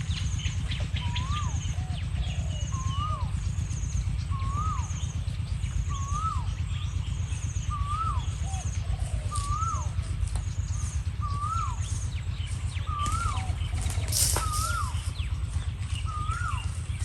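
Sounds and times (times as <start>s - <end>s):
low rumble: 0.0s - 17.0s
dove cooing: 0.8s - 3.4s, 7.7s - 12.0s, 12.8s - 15.2s.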